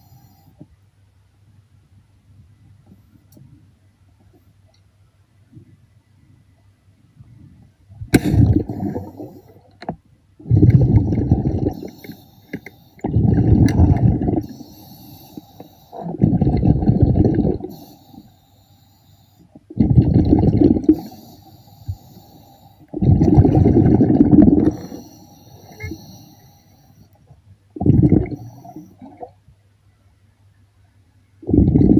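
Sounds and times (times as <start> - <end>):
faint clicking: 4.2 - 4.9, 11.9 - 12.8
regulator bubbles on exhalation: 8.1 - 9.5, 10.4 - 18.0, 19.7 - 22.1, 22.9 - 26.2, 27.8 - 29.3, 31.4 - 31.9.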